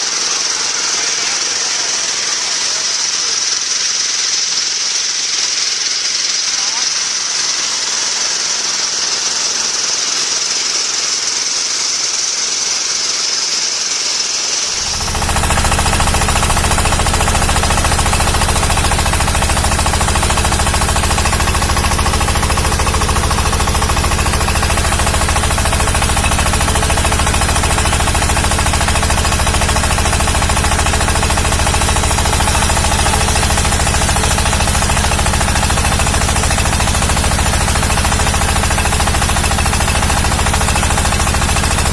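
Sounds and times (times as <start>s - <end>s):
diesel water pump engine clattering: 14.8s - 41.9s.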